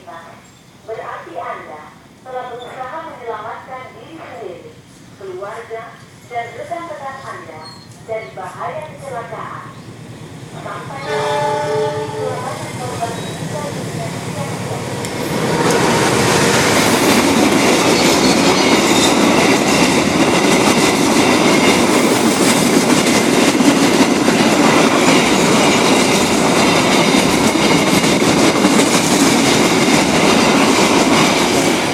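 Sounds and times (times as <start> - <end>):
freight train wheels clattering: 11.1 - 31.9.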